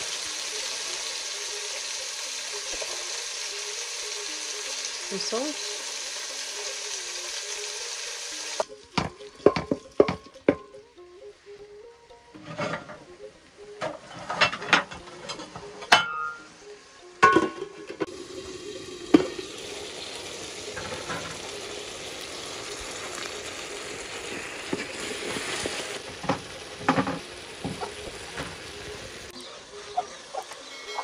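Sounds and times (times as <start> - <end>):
tomatoes sizzling: 0.0 - 12.0, 14.9 - 31.0
spoon knocking and scraping pot: 9.0 - 10.7.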